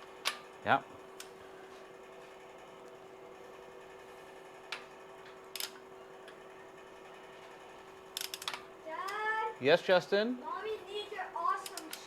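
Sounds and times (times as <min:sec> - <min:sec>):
faint steady hum: 0:00.0 - 0:12.0
torque wrench ratchet clicking: 0:08.2 - 0:09.2, 0:11.6 - 0:12.0.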